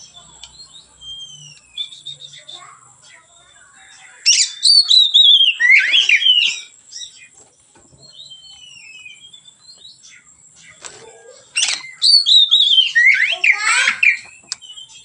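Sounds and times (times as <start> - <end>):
bird singing whistles: 0.4 - 2.8, 4.3 - 7.2, 8.0 - 10.3, 11.6 - 15.0.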